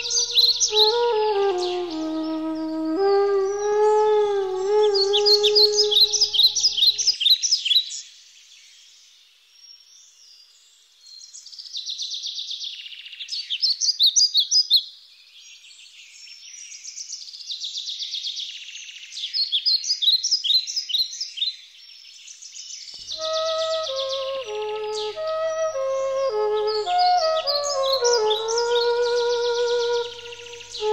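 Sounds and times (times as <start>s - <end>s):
music: 0.0s - 6.8s, 23.2s - 30.9s.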